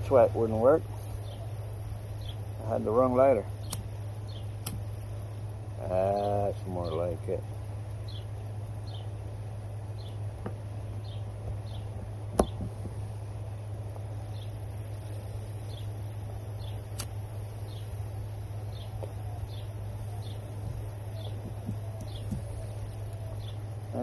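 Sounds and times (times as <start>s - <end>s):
steady low hum: 0.0s - 24.0s
sharp clicks: 0.2s - 5.6s, 11.9s - 12.8s, 14.4s - 24.0s.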